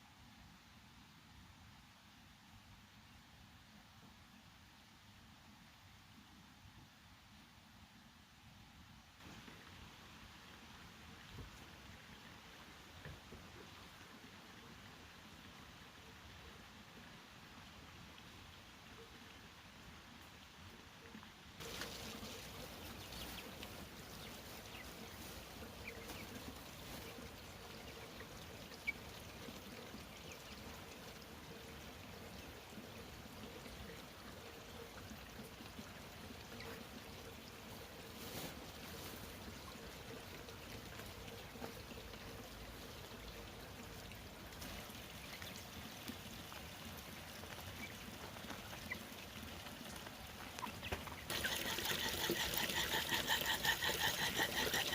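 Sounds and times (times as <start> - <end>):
water trickling: 21.6 - 54.9.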